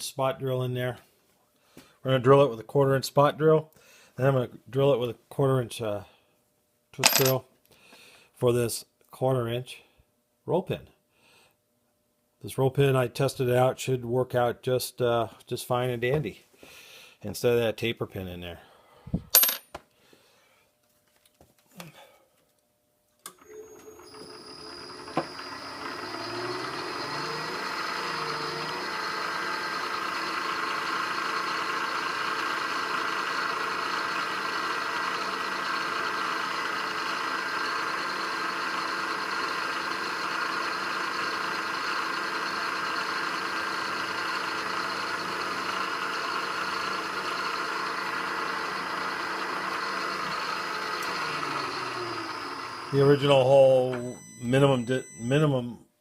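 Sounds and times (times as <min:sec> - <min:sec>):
milling machine spindle motor: 0:23.3 - 0:55.3
drill cutting into steel: 0:23.3 - 0:55.4.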